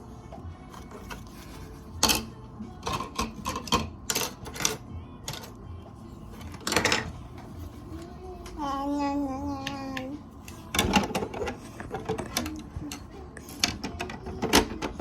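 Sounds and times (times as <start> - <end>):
child's voice: 7.9 - 10.3.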